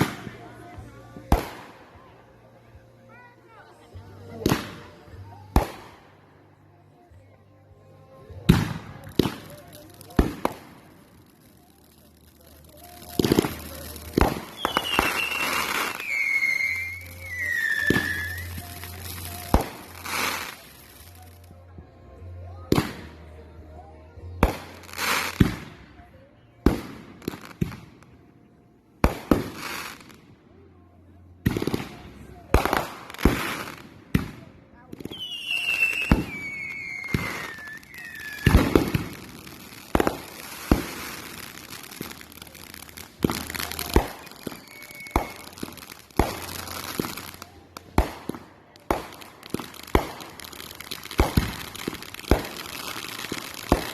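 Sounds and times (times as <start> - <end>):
firework hiss: 8.4 - 21.4, 35.1 - 53.9
whistling firework: 12.8 - 20.6, 35.1 - 42.2, 43.4 - 47.3
firework bangs: 13.0 - 20.8, 35.1 - 53.9
falling firework whistle: 14.6 - 18.8, 35.1 - 38.7, 44.3 - 45.5.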